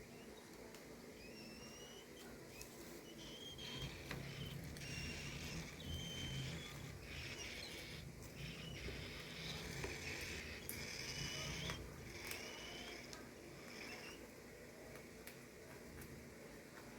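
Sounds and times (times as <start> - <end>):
pet birds chirping: 0.0 - 14.3.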